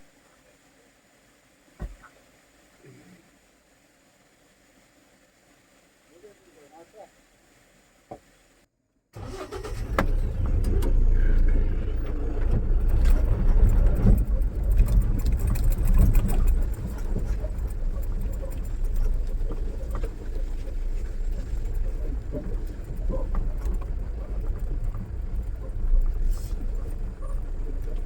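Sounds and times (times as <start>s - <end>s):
vehicle engine low rumble: 9.2s - 28.0s.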